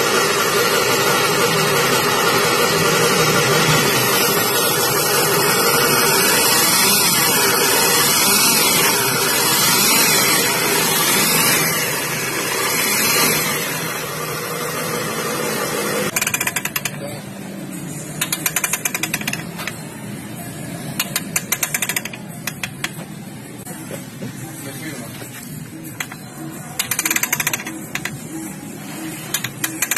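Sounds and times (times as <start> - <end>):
machine running loudly: 0.0 - 29.9
rapid rattling clicks: 16.1 - 17.2, 18.2 - 19.8, 21.0 - 23.1, 25.8 - 28.3, 29.1 - 29.9.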